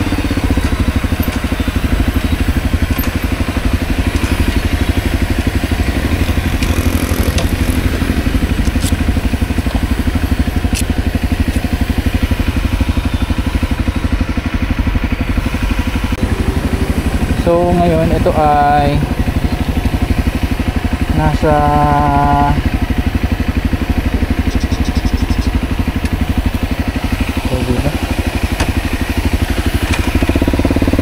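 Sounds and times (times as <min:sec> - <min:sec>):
motorcycle engine idling: 0:00.0 - 0:31.0.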